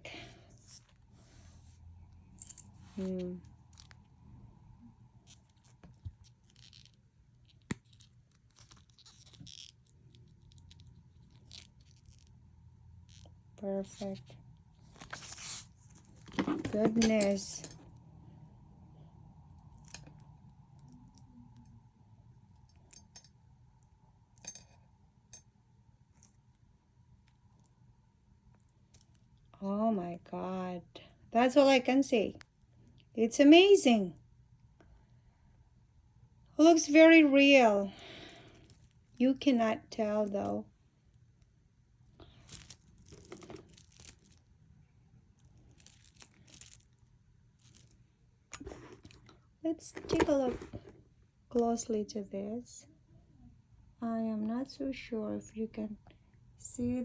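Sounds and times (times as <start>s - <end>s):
handbag hardware clicking: 42.4s - 44.4s, 48.6s - 49.3s, 49.9s - 51.0s.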